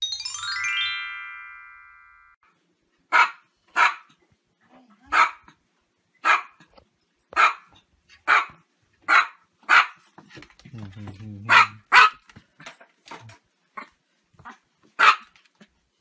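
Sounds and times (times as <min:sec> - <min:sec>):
chime ringing: 0:00.0 - 0:02.4
small dog barking: 0:03.1 - 0:04.2, 0:05.0 - 0:05.6, 0:06.2 - 0:06.6, 0:07.3 - 0:10.0, 0:11.5 - 0:12.2, 0:13.8 - 0:15.4.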